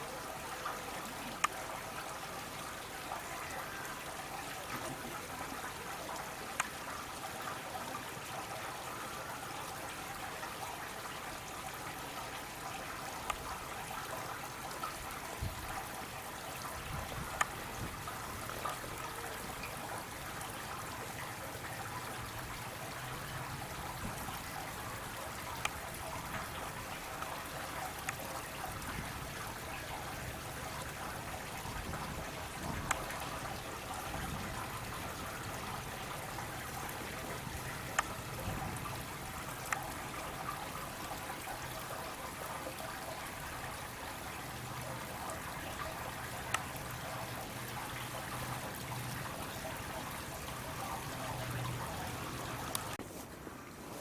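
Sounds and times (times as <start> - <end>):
trickle of running water: 0.0 - 54.0
faint sharp clicks: 1.3 - 1.6, 13.2 - 13.4, 17.4 - 17.6, 25.6 - 25.8, 37.9 - 38.1, 39.6 - 39.8, 46.4 - 46.8, 52.6 - 53.0.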